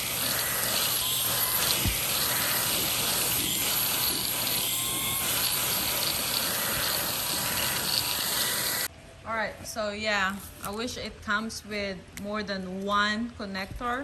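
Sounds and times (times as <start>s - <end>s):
stick vacuum running: 0.0s - 8.9s.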